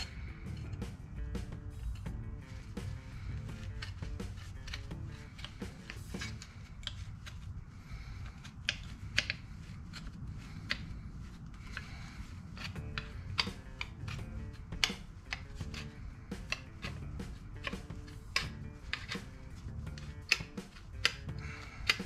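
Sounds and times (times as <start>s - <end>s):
faint background music: 0.0s - 22.0s
metallic clicks on sheet steel: 12.6s - 17.0s, 17.6s - 22.0s.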